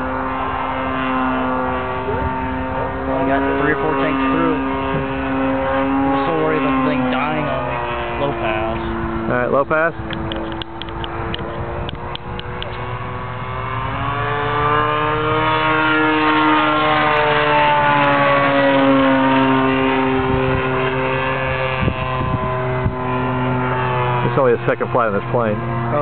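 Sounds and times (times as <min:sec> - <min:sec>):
model plane engine buzz passing: 0:00.0 - 0:26.0.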